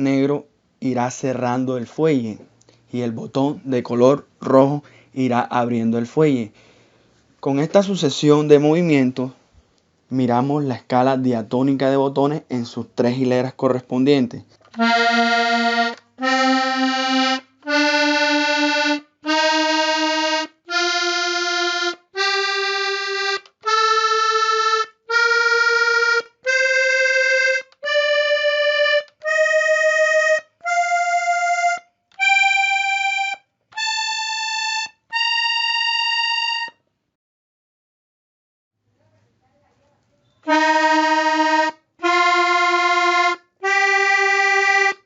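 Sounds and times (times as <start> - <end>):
button accordion playing a scale: 14.7 - 36.8, 40.4 - 45.0.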